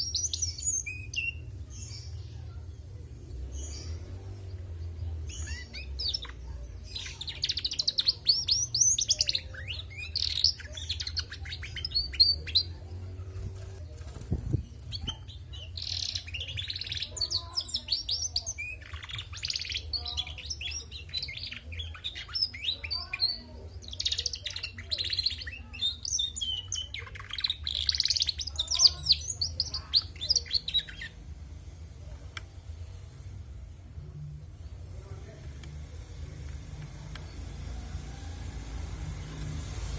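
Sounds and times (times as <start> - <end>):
canary twittering: 5.3 - 31.3.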